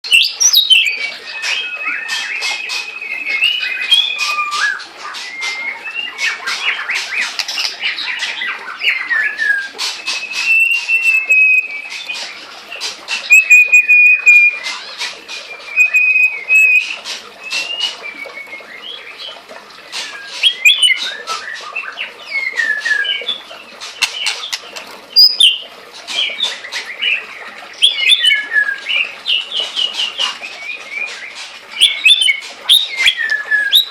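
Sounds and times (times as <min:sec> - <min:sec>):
songbird singing: 0:13.3 - 0:14.8, 0:15.6 - 0:19.4, 0:22.3 - 0:33.9.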